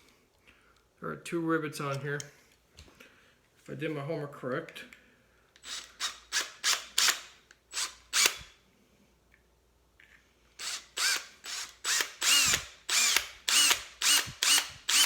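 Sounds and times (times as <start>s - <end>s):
small electric drill bursts: 5.6s - 8.6s, 10.6s - 15.0s.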